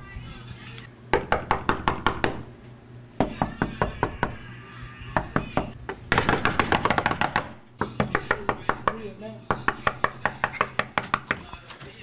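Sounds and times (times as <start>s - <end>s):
rapid knocking: 5.2s - 11.4s.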